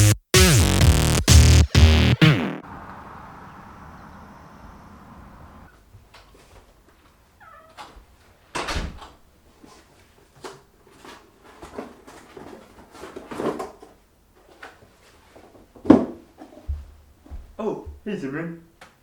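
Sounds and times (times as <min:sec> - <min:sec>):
objects knocking and thumping: 0:10.4 - 0:14.8, 0:15.4 - 0:17.6.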